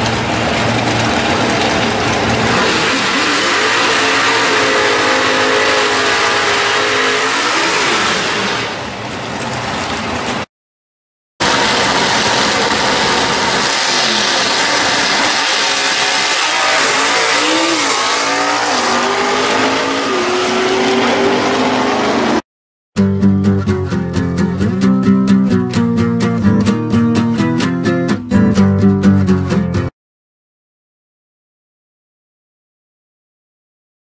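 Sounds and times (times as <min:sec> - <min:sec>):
muscle car engines revving: 0:00.0 - 0:09.5, 0:11.4 - 0:22.4
car engines at full throttle: 0:00.0 - 0:10.5, 0:11.4 - 0:22.4.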